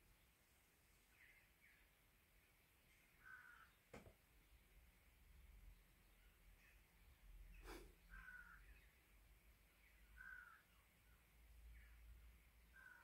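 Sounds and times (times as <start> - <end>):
short bird calls: 3.1 - 3.9, 7.5 - 8.9, 10.2 - 10.8, 12.7 - 13.0.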